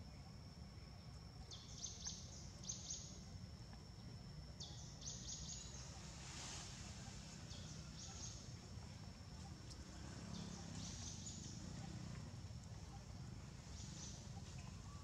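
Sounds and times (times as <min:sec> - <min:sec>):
high insect whine: 0:00.0 - 0:15.0
low outdoor background noise: 0:00.0 - 0:15.0
small birds chirping: 0:01.4 - 0:03.3, 0:09.7 - 0:15.0.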